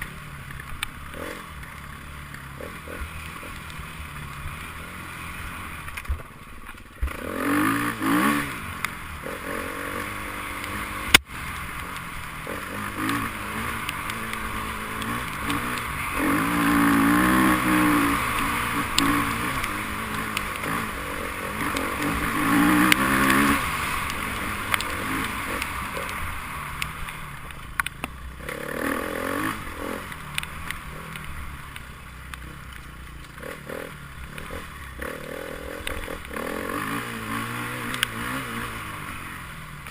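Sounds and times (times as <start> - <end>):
motorcycle engines revving: 0.0 - 39.9.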